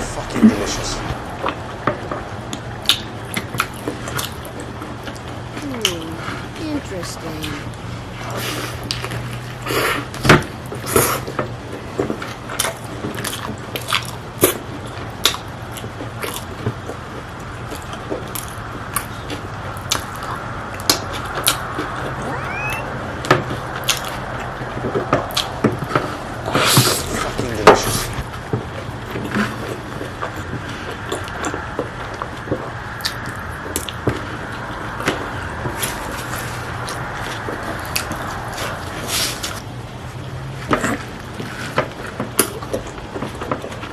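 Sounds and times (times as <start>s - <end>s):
steady low hum: 0.0s - 1.5s, 26.1s - 28.5s.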